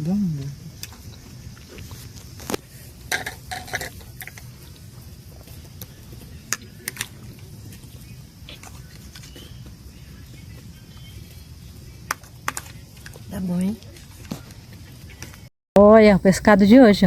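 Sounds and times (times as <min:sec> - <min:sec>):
utensils clinking against pans: 0:03.1 - 0:04.4.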